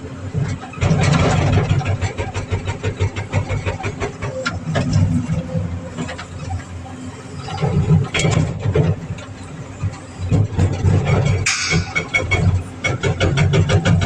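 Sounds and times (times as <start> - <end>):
excavator engine running: 0.0 - 14.0
hydraulic breaker hammering: 10.6 - 14.0.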